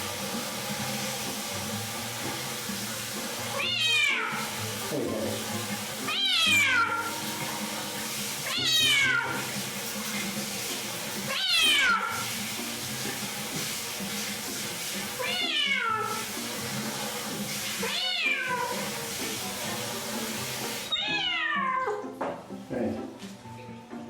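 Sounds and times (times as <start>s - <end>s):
cat yowling: 3.6s - 4.5s, 6.1s - 7.1s, 8.4s - 9.4s, 11.3s - 12.2s, 15.2s - 16.2s, 17.8s - 18.8s, 20.9s - 22.0s.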